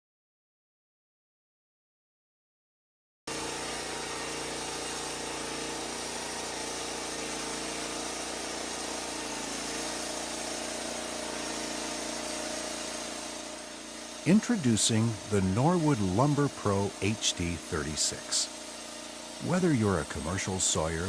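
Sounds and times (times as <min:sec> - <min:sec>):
engine running steadily: 0:03.6 - 0:21.0.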